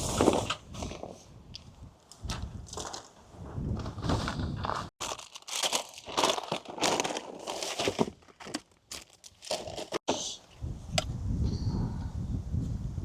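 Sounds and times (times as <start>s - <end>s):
crinkling and rustling: 0.0s - 10.3s.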